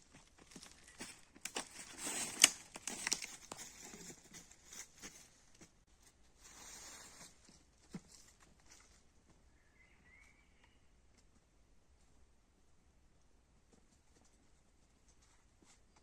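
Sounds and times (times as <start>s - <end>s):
dry rustling and crinkling: 0.0s - 9.1s.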